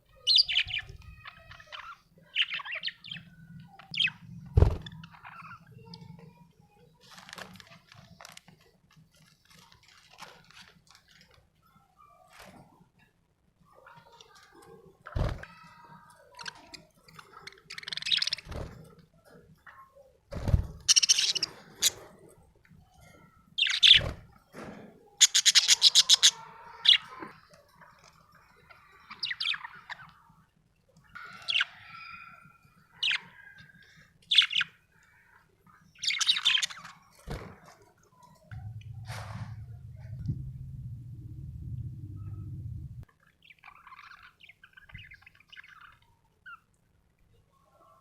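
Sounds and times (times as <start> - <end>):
budgerigar chirping and chattering: 20.9 - 22.0, 25.2 - 27.2
low thumps: 38.5 - 43.0.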